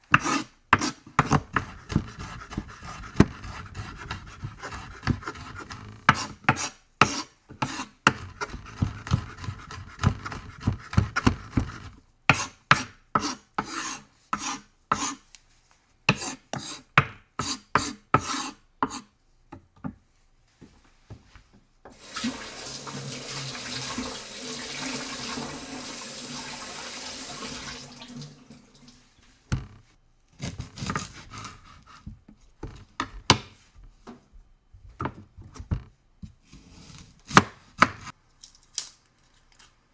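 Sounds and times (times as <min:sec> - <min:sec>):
knife chopping on cutting board: 0:00.1 - 0:15.2, 0:16.1 - 0:19.1, 0:30.4 - 0:33.5, 0:36.5 - 0:38.1
kitchen tap running: 0:21.9 - 0:29.1.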